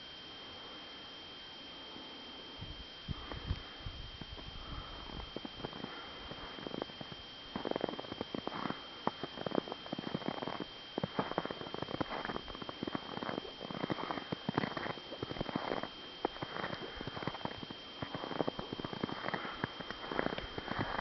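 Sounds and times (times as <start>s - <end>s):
footsteps crunching in snow: 4.6s - 21.0s.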